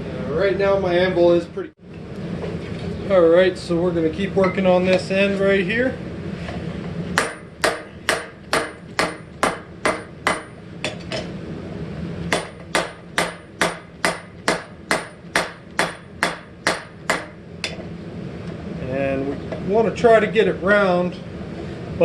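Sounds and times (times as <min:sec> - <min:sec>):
hammer striking steel on anvil: 0:07.2 - 0:11.3, 0:12.3 - 0:17.8.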